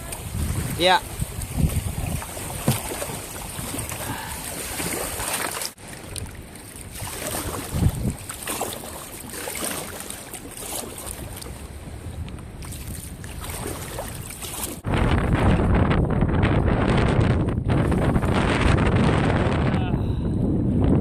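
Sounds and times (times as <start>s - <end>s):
wind buffeting microphone: 0.0s - 8.7s, 11.1s - 21.0s
water splashing and slapping: 0.0s - 15.6s.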